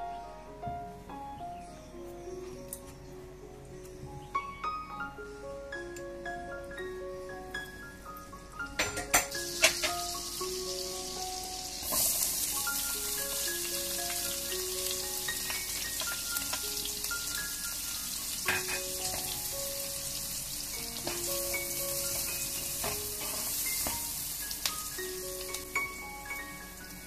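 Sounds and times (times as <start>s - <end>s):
butter and oil sizzling in a wok: 8.8s - 27.0s.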